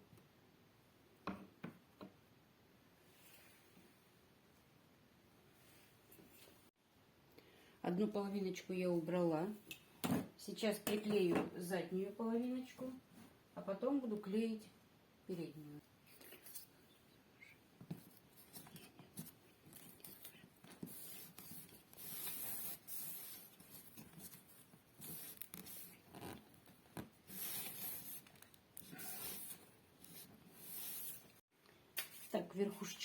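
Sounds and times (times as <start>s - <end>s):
small clicks and scrapes: 17.4s - 31.4s.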